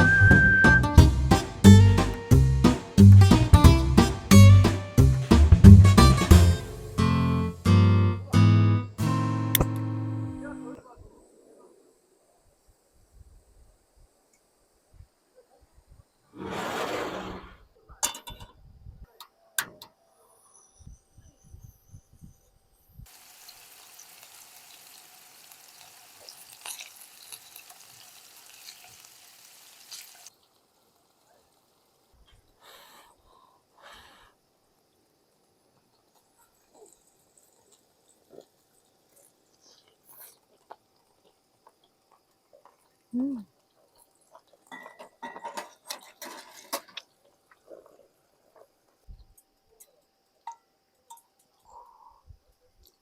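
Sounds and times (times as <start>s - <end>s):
food sizzling in a hot pan: 23.1s - 32.2s.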